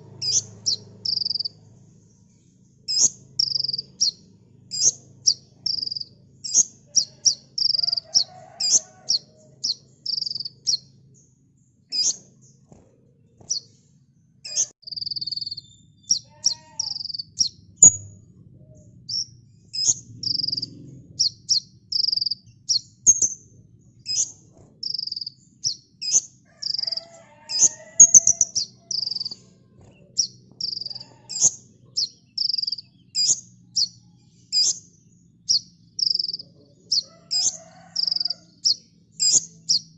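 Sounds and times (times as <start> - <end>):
bird chirping and trilling: 0.0 - 12.7, 13.3 - 13.8, 14.4 - 39.9.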